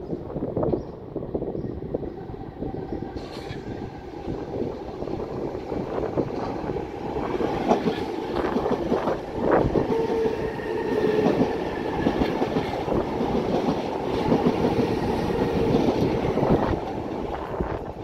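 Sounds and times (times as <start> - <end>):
train wheels clicking over rail joints: 5.6 - 10.2.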